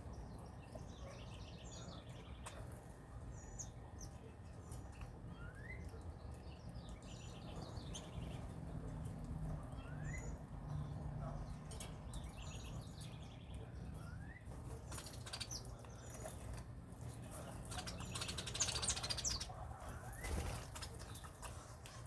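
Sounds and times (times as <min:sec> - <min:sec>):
small birds chirping: 0:00.0 - 0:22.0
wings fluttering and flapping: 0:16.1 - 0:22.0.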